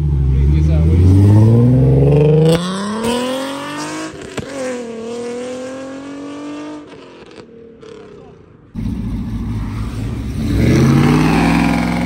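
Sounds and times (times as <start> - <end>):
car engine accelerating hard: 8.8 - 12.0.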